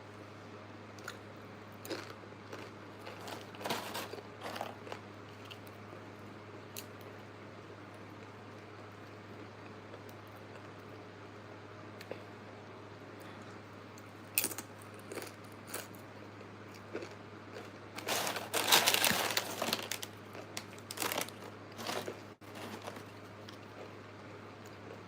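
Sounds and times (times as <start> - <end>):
food crunching: 1.8 - 5.8, 14.4 - 25.0
food wrapping crinkling: 1.9 - 5.0, 17.9 - 23.9.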